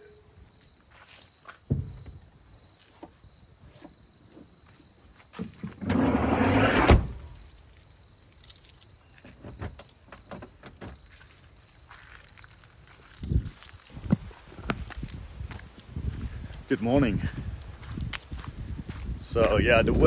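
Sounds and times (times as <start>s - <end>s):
thump: 1.7s - 2.2s
rough rumble: 5.8s - 7.5s.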